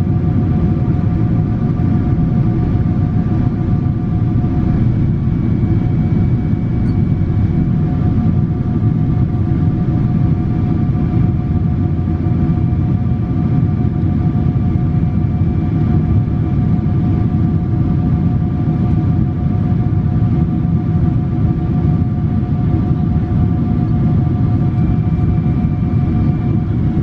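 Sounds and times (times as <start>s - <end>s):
aircraft cabin rumble: 0.0s - 27.0s
faint engine tones: 1.0s - 12.8s, 22.6s - 27.0s.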